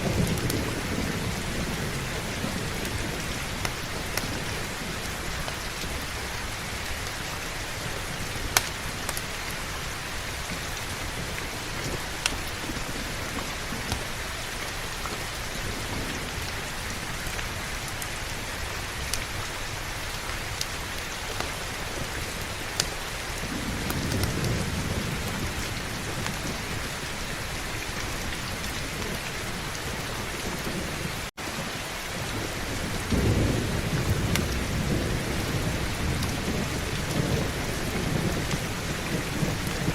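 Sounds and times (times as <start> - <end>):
low rolls of thunder: 0.0 - 7.1, 21.4 - 39.9
heavy rain falling: 0.0 - 39.9.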